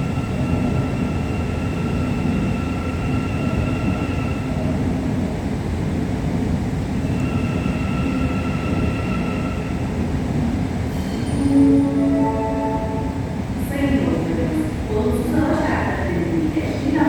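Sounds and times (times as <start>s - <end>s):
short pitched tone: 11.1s - 13.5s.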